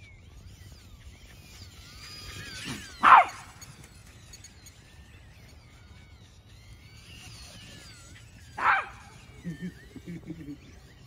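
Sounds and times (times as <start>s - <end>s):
faint bird chirps: 0.0s - 11.0s
low outdoor background noise: 0.0s - 11.0s
loud animal call: 4.9s - 11.0s.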